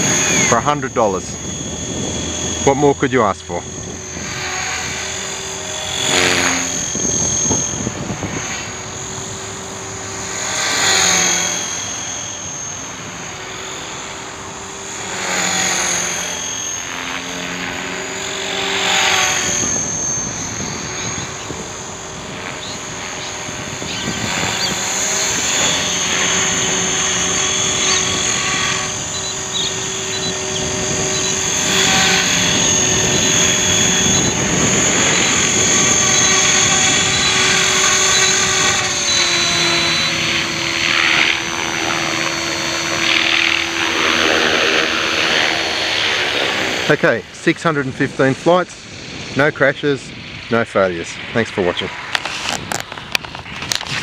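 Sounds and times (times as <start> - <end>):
model helicopter rotor whine: 0.0 - 54.0.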